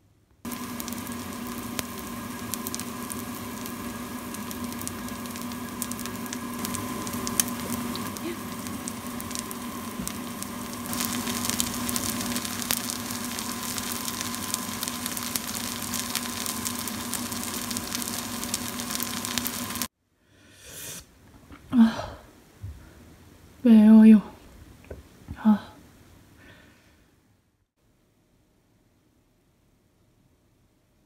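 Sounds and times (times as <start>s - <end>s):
steady hum: 0.4s - 19.9s
pancake sizzling in frying pan: 0.5s - 19.9s.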